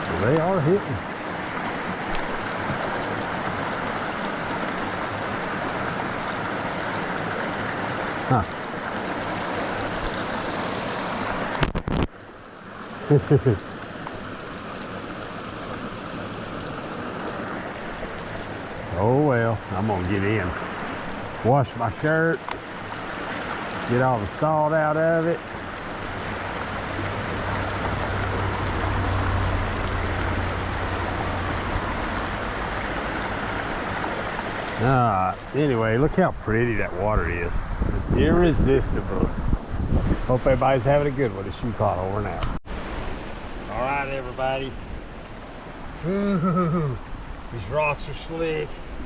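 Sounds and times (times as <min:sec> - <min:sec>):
river water rushing: 0:00.0 - 0:37.8, 0:42.0 - 0:49.0
low rumble: 0:26.7 - 0:32.8.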